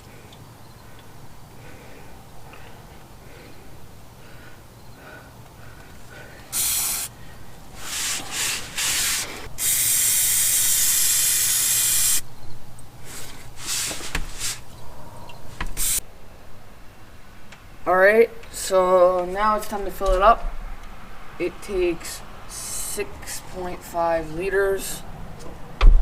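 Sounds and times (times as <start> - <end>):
aerosol spray bursts: 6.5 - 7.2, 7.8 - 12.2, 15.8 - 16.0.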